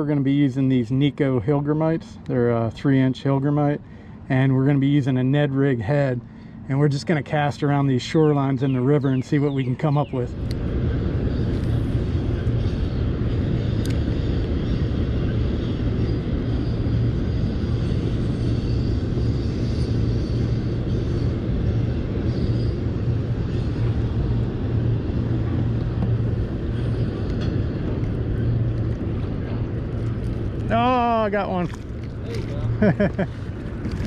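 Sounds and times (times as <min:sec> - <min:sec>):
low rumbling noise: 0:09.8 - 0:34.0.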